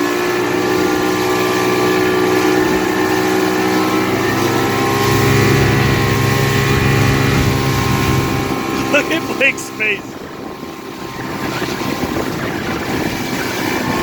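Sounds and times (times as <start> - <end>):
motorboat engine running: 0.0 - 14.0
water noise: 0.0 - 14.0
wind noise: 4.9 - 8.9, 10.0 - 14.0.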